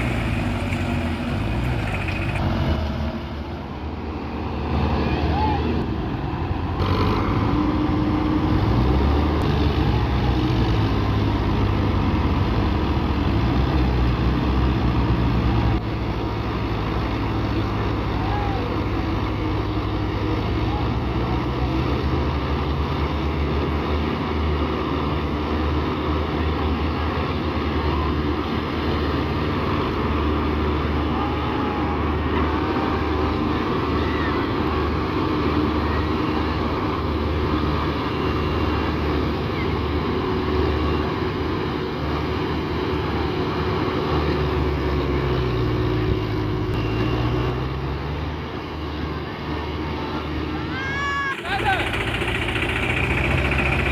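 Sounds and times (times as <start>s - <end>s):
heavy diesel engine under load: 0.0s - 53.9s.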